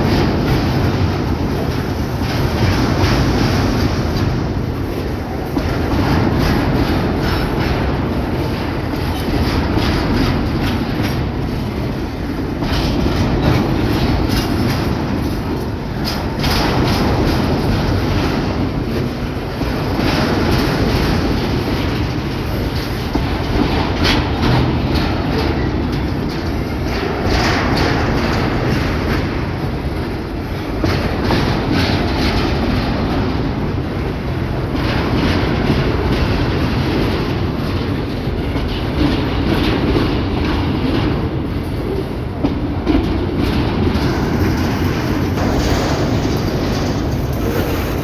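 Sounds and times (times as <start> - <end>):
train rumble on bridge: 0.0 - 48.0
train wheels clacking over rail joints: 0.0 - 48.0.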